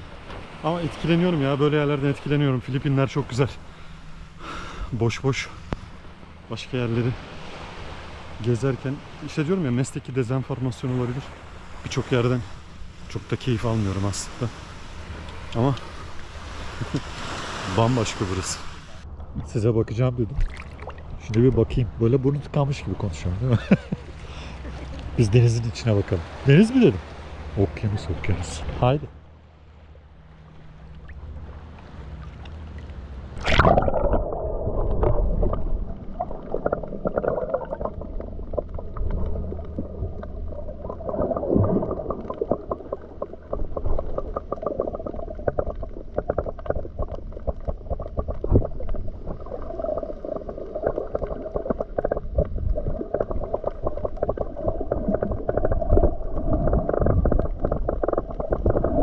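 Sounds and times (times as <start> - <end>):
underwater gurgling and rumbling: 0.0 - 59.0
camera plunging into water: 20.3 - 21.3, 33.4 - 39.3.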